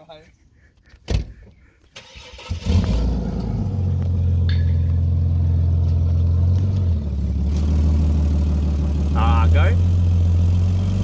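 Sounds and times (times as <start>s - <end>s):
car engine starting and idling: 1.9s - 11.0s.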